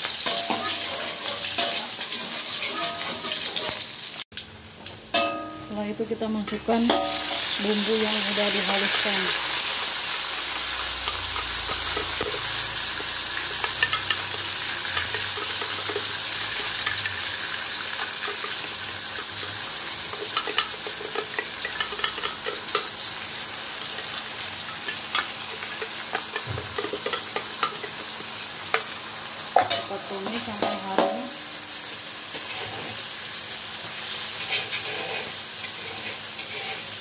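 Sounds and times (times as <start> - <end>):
paste sizzling in hot oil: 0.0 - 4.3, 6.7 - 37.0
spatula clicking and scraping: 18.0 - 22.9, 24.8 - 28.1, 34.4 - 37.0.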